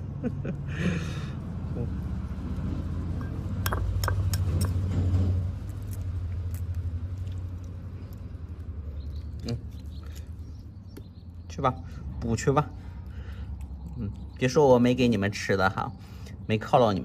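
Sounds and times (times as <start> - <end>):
low engine rumble: 0.0 - 17.0
sharp clicks and clinks: 3.2 - 5.0.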